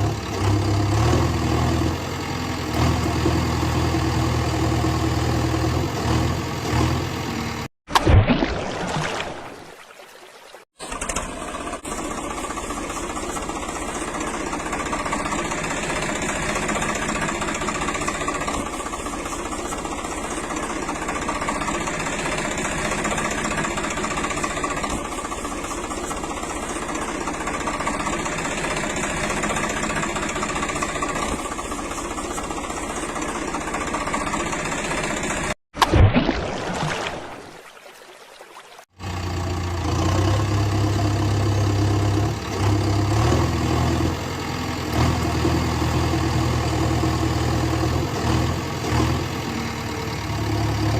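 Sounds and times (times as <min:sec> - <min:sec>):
motor running steadily: 0:10.9 - 0:35.6.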